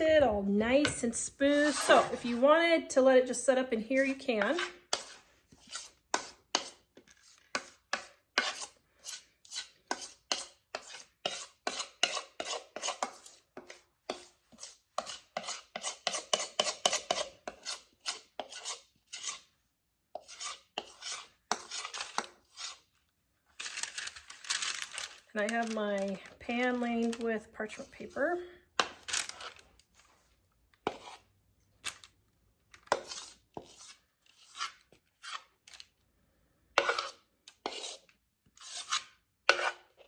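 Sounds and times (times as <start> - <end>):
spoon scraping a bowl: 0.0 - 2.6, 4.0 - 19.6, 20.2 - 23.0, 30.8 - 31.3, 32.8 - 35.6, 36.7 - 40.0.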